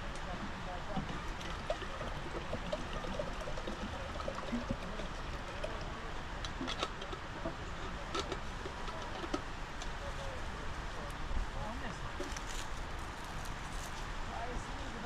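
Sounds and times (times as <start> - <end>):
water running and trickling: 0.2 - 9.1.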